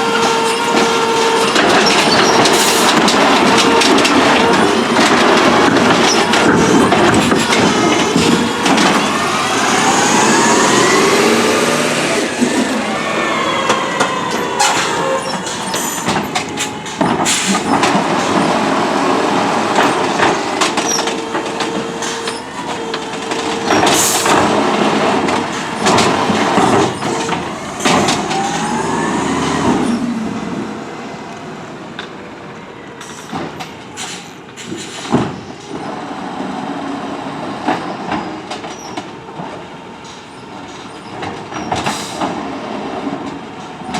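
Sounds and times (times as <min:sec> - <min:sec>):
hydraulic whine: 0:00.0 - 0:31.4
garbage truck engine revving: 0:00.0 - 0:31.9.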